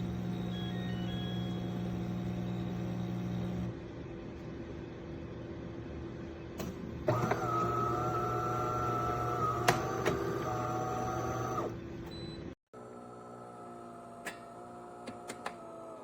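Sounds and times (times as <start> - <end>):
espresso machine motor whine: 0.0 - 3.8, 7.1 - 11.8, 12.8 - 15.0
espresso machine low hum: 0.0 - 5.3, 7.0 - 16.0.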